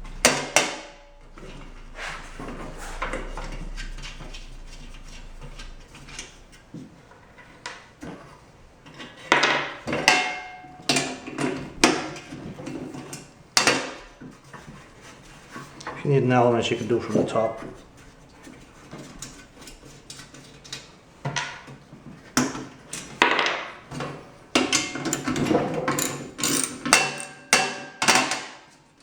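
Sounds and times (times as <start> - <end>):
metal tools clinking and knocking: 25.0 - 27.4.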